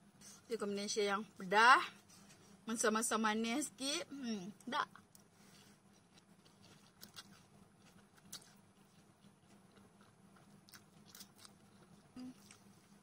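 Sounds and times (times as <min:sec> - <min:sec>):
person chewing: 0:05.0 - 0:13.0.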